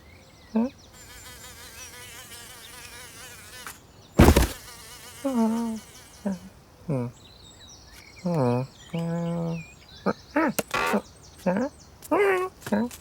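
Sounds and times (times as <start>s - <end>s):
loud thump: 4.2s - 4.6s
cartoon insect buzzing: 4.2s - 5.5s.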